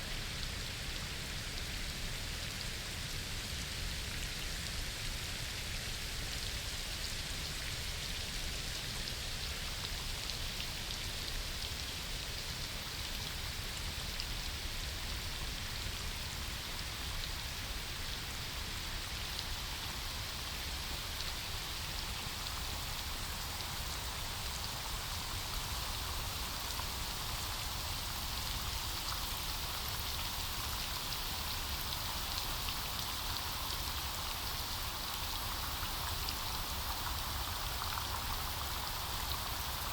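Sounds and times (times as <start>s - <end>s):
rain on foliage: 16.2s - 39.9s.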